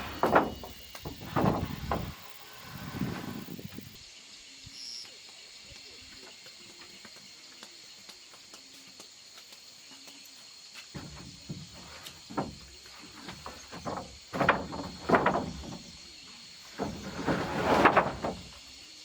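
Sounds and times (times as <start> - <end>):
knocks and rustles: 0.0 - 4.0, 10.8 - 18.7
insects chirring: 0.0 - 19.0.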